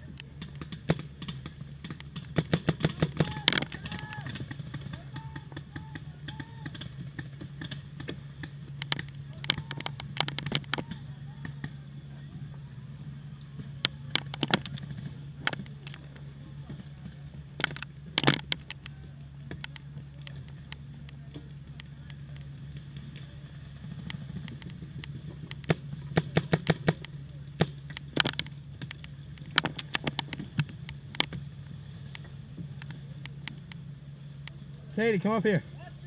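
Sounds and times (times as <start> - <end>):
steady low hum: 0.0 - 36.0
paintball markers firing: 25.5 - 31.4.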